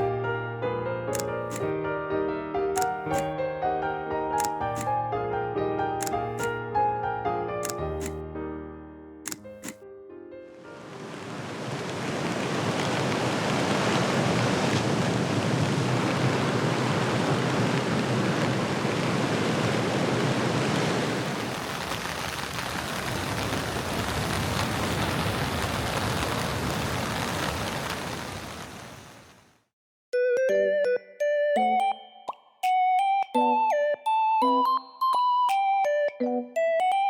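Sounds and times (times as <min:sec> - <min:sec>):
rushing water: 0:10.7 - 0:29.1.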